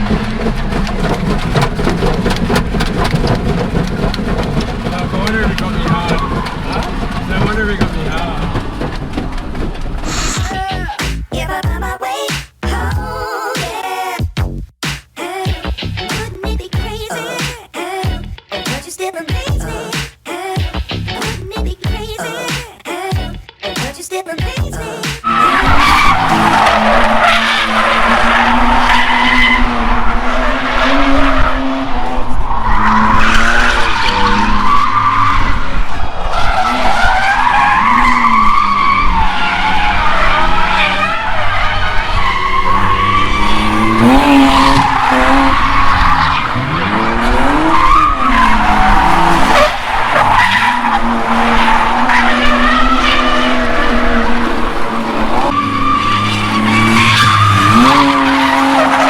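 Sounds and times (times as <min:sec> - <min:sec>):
car engine revving high: 0:00.0 - 0:10.6, 0:25.3 - 0:59.0
tyre squeal: 0:00.0 - 0:10.8, 0:25.2 - 0:31.6, 0:36.2 - 0:54.3, 0:55.4 - 0:59.0.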